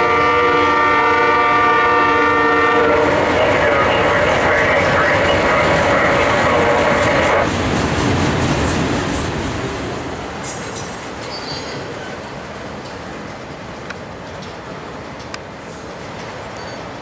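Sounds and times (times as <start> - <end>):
locomotive horn: 0.0 - 7.4
freight cars rumbling on rails: 0.0 - 17.0
high wheel squeal: 10.4 - 12.4, 15.6 - 17.0.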